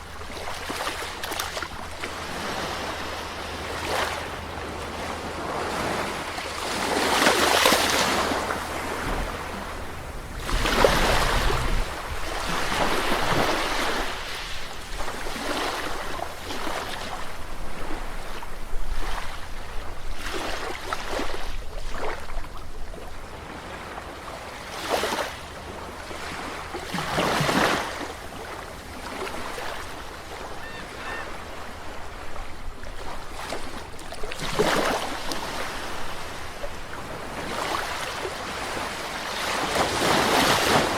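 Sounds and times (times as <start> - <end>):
sea waves washing onto beach: 0.0 - 21.6
low rumble of surf: 0.0 - 27.2.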